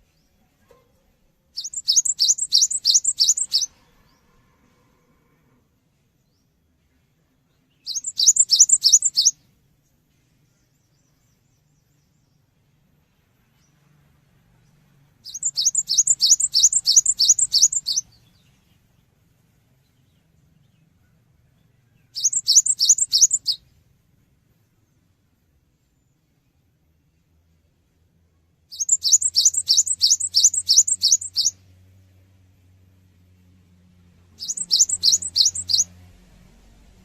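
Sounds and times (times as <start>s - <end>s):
bird singing high notes: 1.6s - 3.7s, 7.9s - 9.4s, 15.3s - 18.1s, 22.2s - 23.6s, 28.7s - 31.6s, 34.4s - 35.9s.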